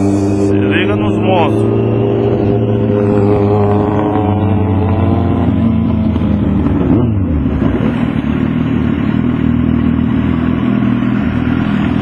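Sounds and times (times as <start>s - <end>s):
motorcycle engines running: 0.0s - 12.0s.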